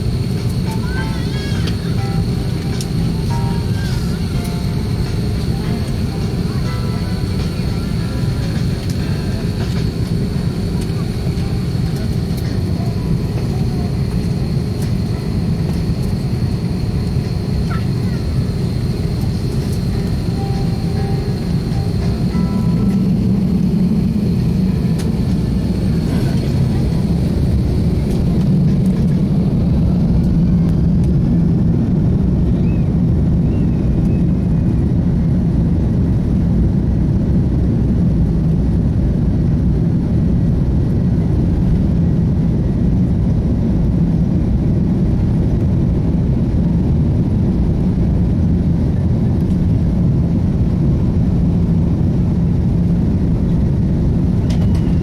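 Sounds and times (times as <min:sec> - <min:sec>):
faint high whine: 0:00.0 - 0:30.8
jet engines rumbling in cabin: 0:00.0 - 0:55.0.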